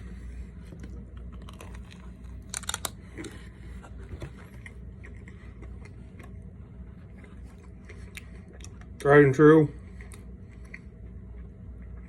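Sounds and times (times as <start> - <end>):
person biting and chewing: 0.8 - 6.4.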